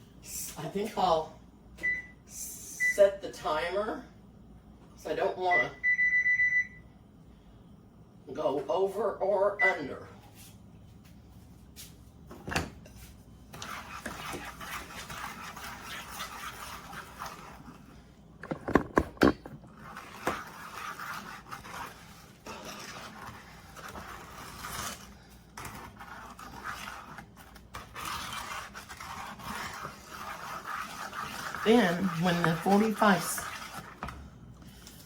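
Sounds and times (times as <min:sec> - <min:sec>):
spoon stirring and scraping bowl: 0:12.8 - 0:35.0.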